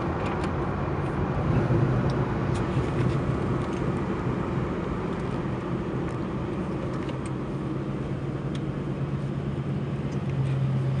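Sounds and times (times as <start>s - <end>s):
car engine humming: 0.0s - 11.0s
road and wind noise: 0.0s - 11.0s.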